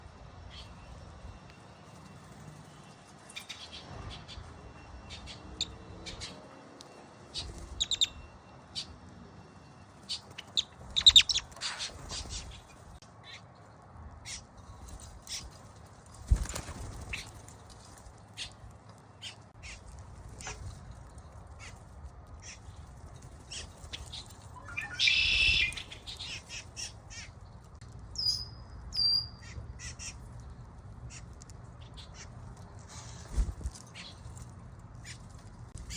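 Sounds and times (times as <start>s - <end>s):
birds chirping: 2.0s - 13.6s, 16.3s - 35.9s
whistled bird notes: 24.5s - 26.4s
harsh bird call: 24.6s - 26.6s.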